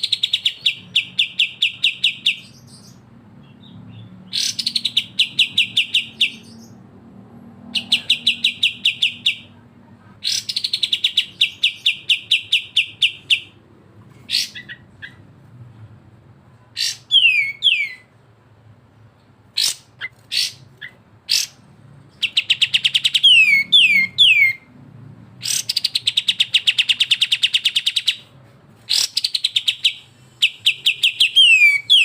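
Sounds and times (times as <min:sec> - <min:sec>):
falling whistles: 0:16.8 - 0:18.1, 0:23.0 - 0:24.6, 0:29.7 - 0:32.0.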